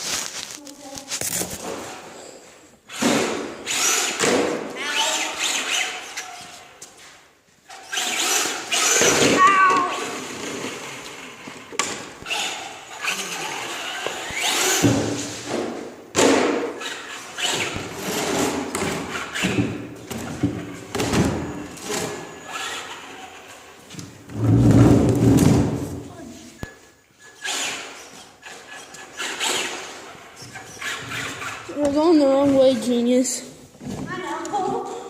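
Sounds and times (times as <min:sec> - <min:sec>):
toy rc car driving: 0:02.9 - 0:06.8, 0:07.7 - 0:14.9, 0:16.7 - 0:19.7, 0:21.6 - 0:23.9, 0:27.2 - 0:31.9.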